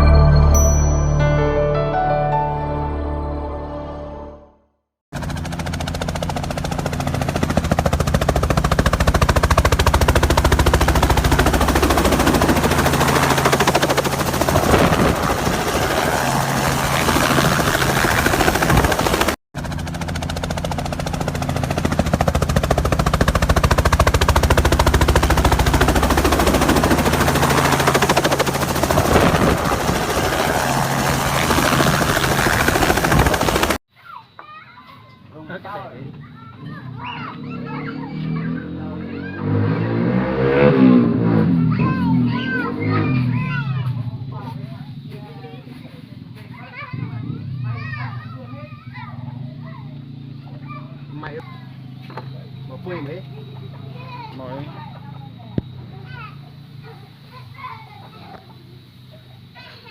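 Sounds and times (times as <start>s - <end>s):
drone propellers buzzing: 5.2s - 33.8s.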